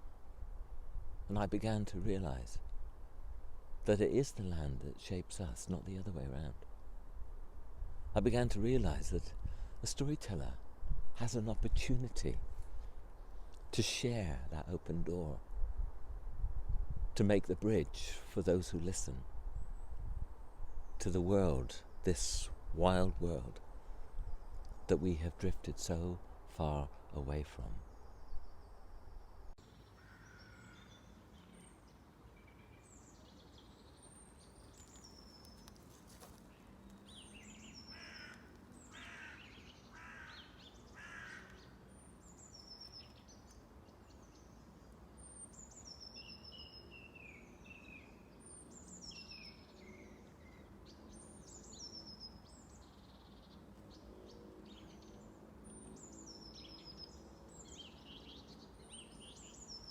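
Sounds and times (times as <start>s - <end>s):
harsh bird calls: 29.7s - 44.6s.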